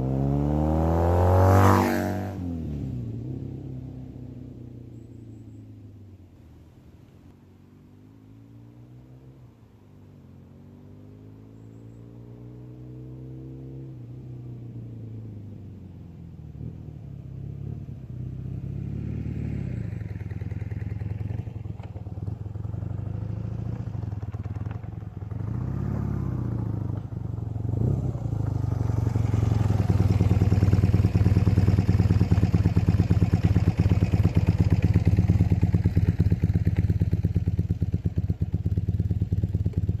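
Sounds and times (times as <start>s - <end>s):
motorcycle engine running: 16.5s - 40.0s.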